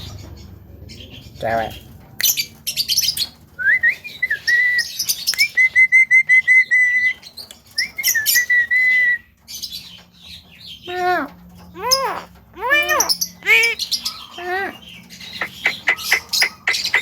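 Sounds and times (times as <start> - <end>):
bird whistling and chattering: 3.6 - 7.2, 7.8 - 9.3, 10.9 - 17.0.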